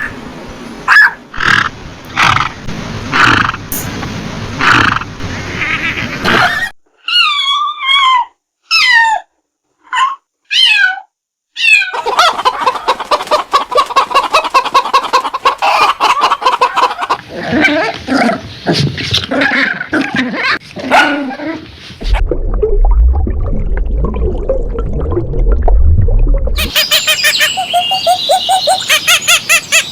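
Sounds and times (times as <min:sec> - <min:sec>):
chickens clucking: 0:11.9 - 0:17.3.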